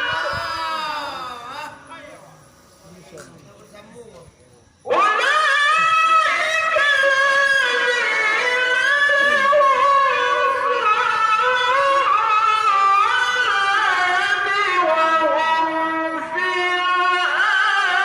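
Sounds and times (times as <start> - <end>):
person chanting recitation: 4.9 - 18.0.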